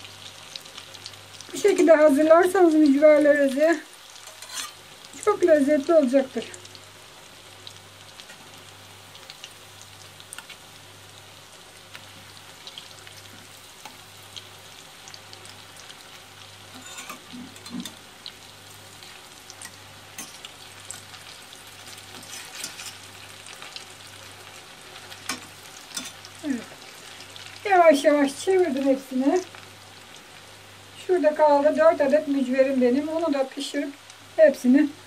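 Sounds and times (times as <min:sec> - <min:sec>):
deep-frying sizzle with crackling pops: 0:00.0 - 0:35.0.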